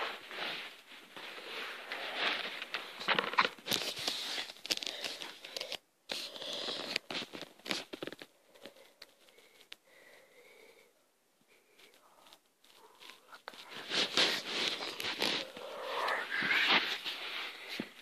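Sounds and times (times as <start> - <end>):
packaging crinkling and rustling: 1.8 - 9.4, 12.6 - 18.0.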